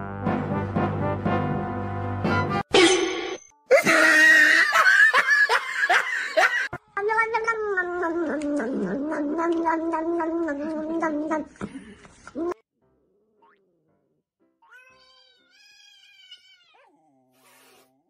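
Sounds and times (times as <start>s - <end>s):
cat yowling: 14.6s - 17.1s.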